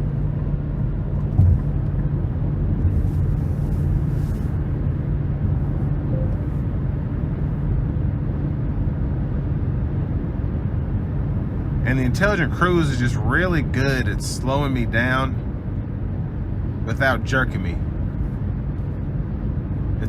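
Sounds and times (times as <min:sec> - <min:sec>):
car cabin road drone: 0:00.0 - 0:20.0
thump: 0:01.3 - 0:01.7.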